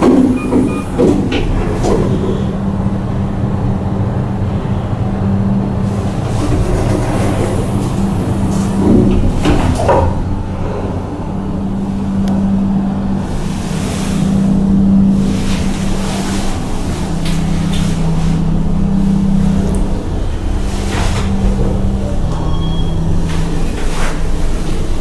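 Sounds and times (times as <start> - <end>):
low machinery hum: 0.0 - 25.0.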